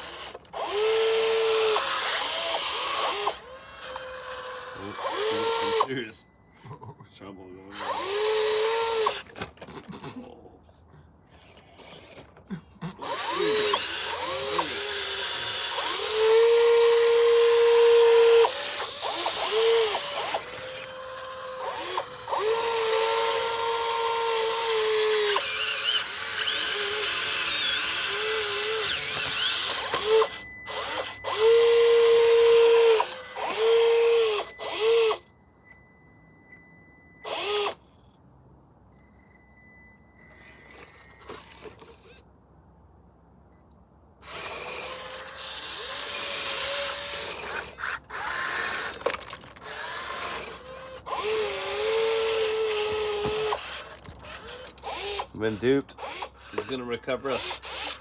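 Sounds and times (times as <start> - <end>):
small electric motor whining: 0.0 - 6.3, 7.6 - 9.4, 11.3 - 38.2, 39.0 - 42.2, 44.2 - 58.0.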